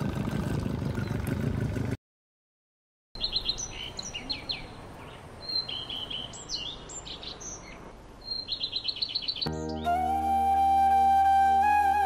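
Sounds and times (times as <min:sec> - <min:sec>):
songbirds chirping and calling: 0:03.2 - 0:10.1.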